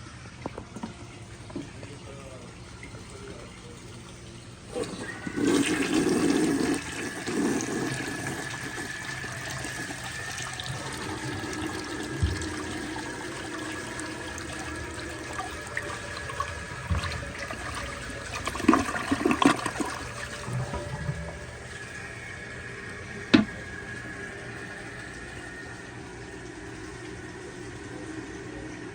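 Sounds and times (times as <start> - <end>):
toilet flushing: 0.0 - 28.9
bowl draining with gurgles: 0.3 - 28.9
tank refilling hiss: 4.7 - 23.7.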